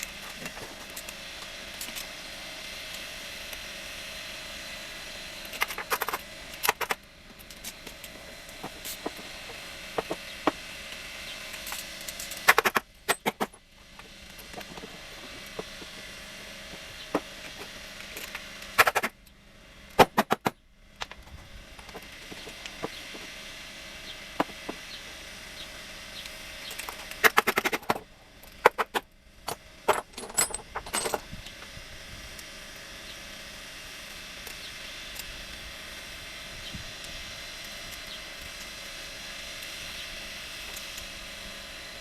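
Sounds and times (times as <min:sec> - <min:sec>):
metal tools clinking: 0:29.9 - 0:31.2.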